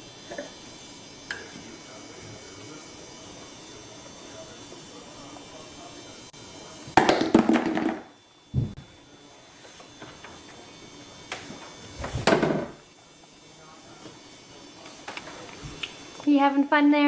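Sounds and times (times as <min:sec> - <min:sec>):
dull thump: 0:08.5 - 0:08.8.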